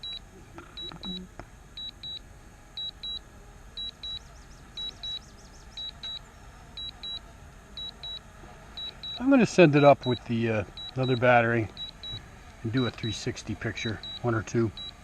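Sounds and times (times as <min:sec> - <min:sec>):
remote controller warning beeps: 0:00.0 - 0:02.2, 0:02.8 - 0:03.2, 0:03.8 - 0:06.2, 0:06.8 - 0:07.2, 0:07.8 - 0:15.0.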